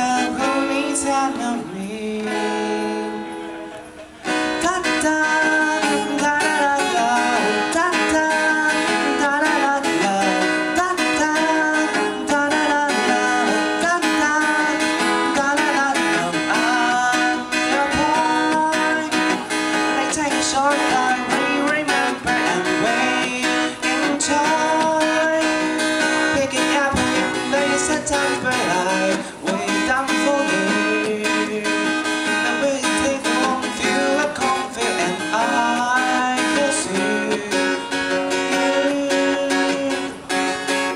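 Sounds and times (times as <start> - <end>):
acoustic guitar playing: 0.0 - 40.9.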